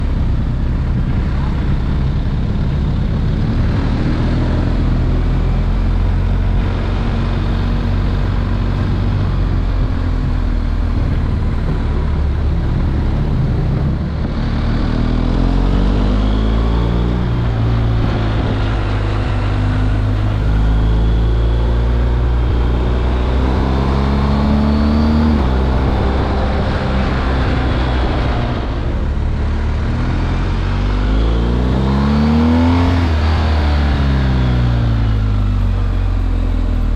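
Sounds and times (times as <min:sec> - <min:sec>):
motorcycle engine shifting gears: 0:00.0 - 0:36.9.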